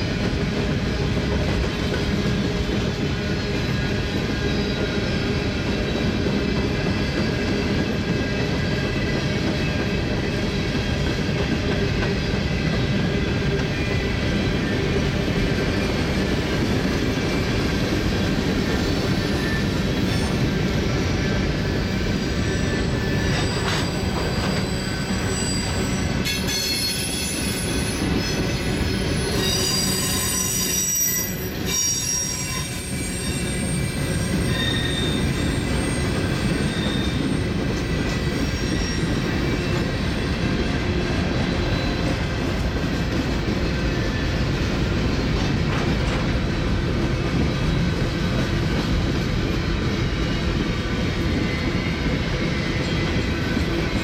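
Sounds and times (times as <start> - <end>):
freight cars rumbling on rails: 0.0 - 30.6, 32.8 - 54.0
high-pitched wheel squeal: 18.8 - 40.4.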